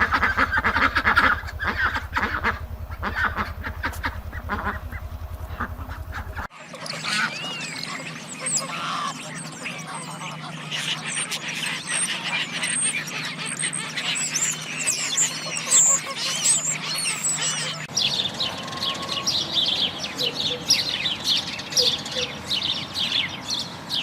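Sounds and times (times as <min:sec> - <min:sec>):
steady low hum: 0:00.0 - 0:06.5
ducks quacking: 0:00.0 - 0:17.9
dense rapid bird chirping: 0:00.0 - 0:24.0
high bird chirps: 0:00.0 - 0:24.0.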